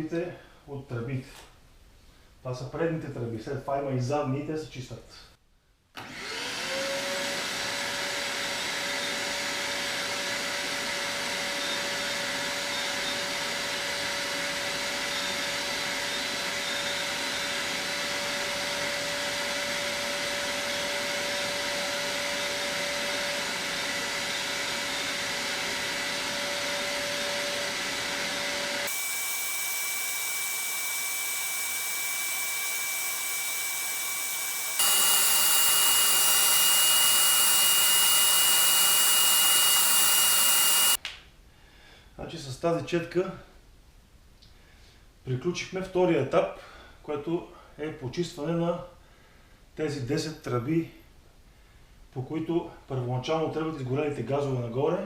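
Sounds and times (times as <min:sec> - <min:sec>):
vacuum cleaner motor whine: 0:06.0 - 0:41.0.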